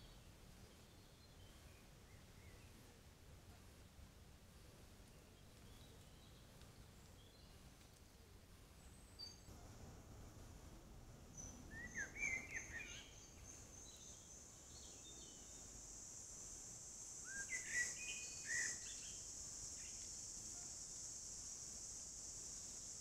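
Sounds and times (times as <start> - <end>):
faint high-pitched hiss: 0.0 - 23.0
songbird chirping: 5.0 - 7.9, 8.5 - 23.0.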